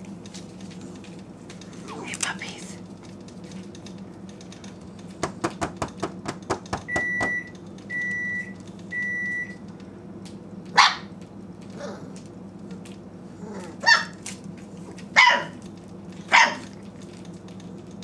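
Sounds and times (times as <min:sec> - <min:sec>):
microwave oven beeping: 0:06.4 - 0:11.0
puppy yelping: 0:13.6 - 0:14.2, 0:15.2 - 0:15.6, 0:16.3 - 0:16.7.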